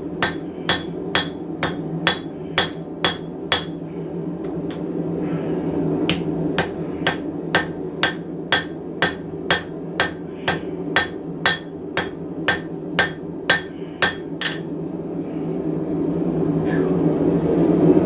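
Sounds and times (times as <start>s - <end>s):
hammer ringing on anvil: 0.0s - 4.0s, 6.1s - 14.8s
low hum: 0.0s - 18.0s.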